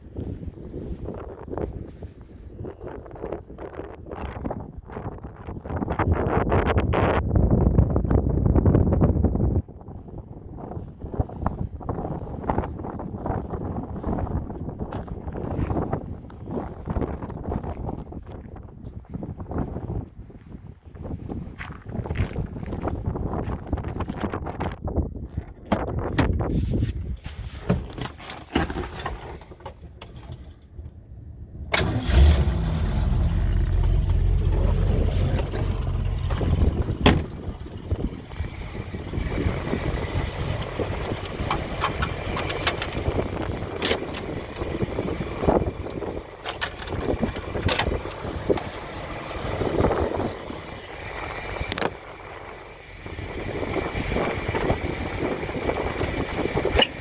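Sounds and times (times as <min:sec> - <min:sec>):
car engine starting and running: 0:27.9 - 0:57.0.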